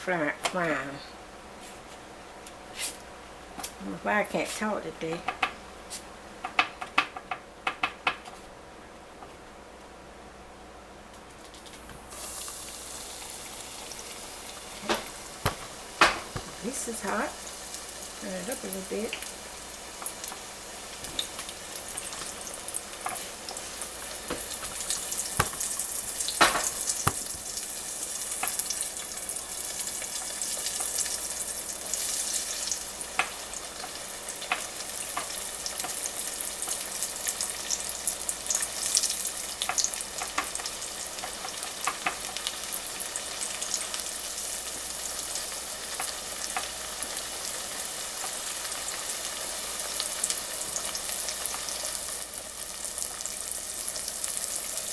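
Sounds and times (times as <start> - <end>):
food sizzling in hot grease: 11.4 - 54.9.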